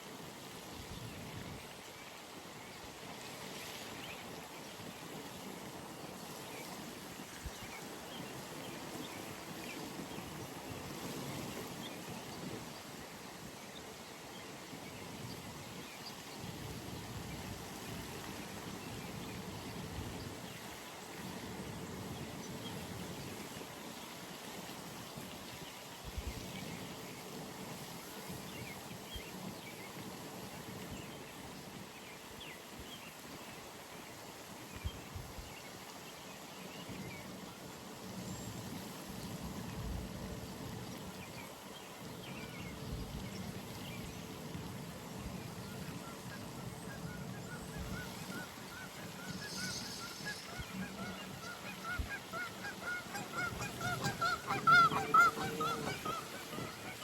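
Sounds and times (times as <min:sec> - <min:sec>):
geese honking: 0:49.0 - 0:57.0.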